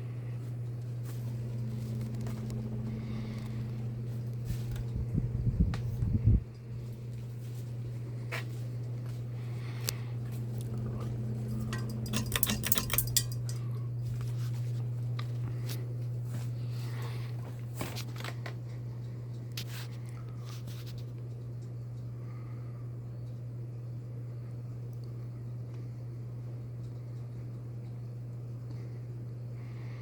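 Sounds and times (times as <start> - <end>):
ceiling fan motor hum: 0.0 - 30.0
rattling clicks: 11.0 - 13.7.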